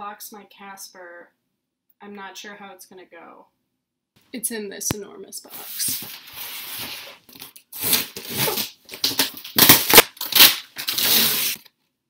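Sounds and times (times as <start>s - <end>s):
cardboard box tearing and rustling: 5.8s - 11.6s.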